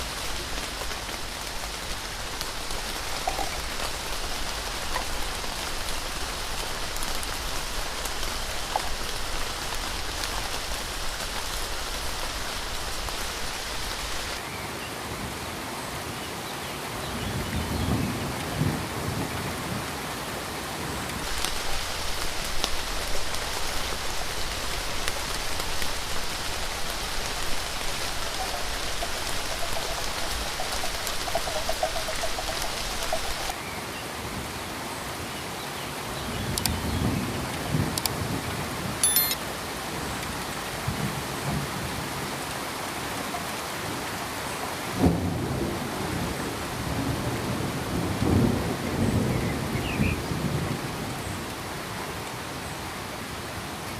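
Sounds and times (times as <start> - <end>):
steady hissing noise: 0.0 - 14.4, 21.2 - 33.8.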